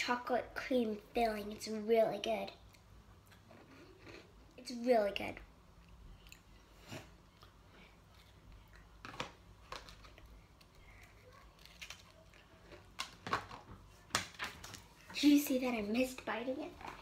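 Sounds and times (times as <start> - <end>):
biscuit chewing crunches: 7.3 - 13.6.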